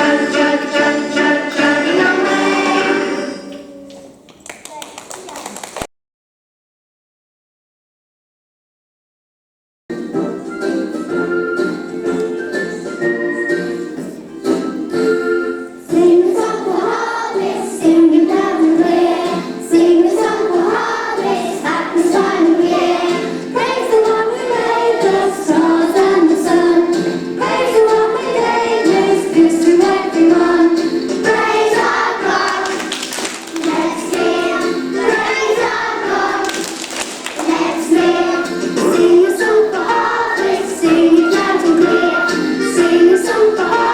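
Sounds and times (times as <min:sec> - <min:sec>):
children singing: 0:00.0 - 0:03.8, 0:10.2 - 0:43.9
instrumental accompaniment: 0:00.0 - 0:03.8, 0:09.9 - 0:43.9.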